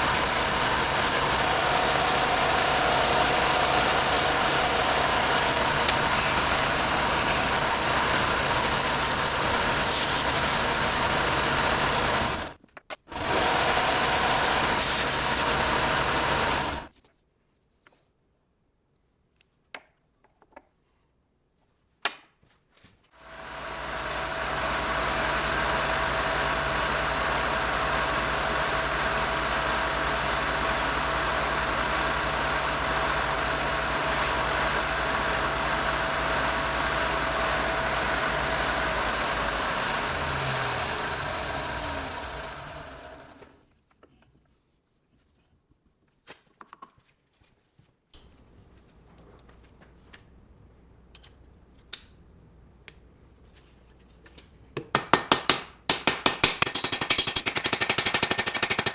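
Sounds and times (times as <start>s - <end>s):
power tool motor whining: 0.0s - 16.9s, 23.2s - 43.6s.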